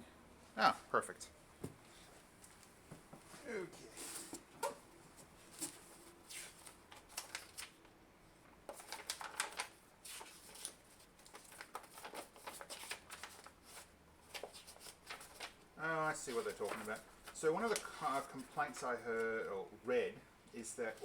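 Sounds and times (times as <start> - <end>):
paper pages rustling: 4.0 - 7.8, 8.7 - 19.5.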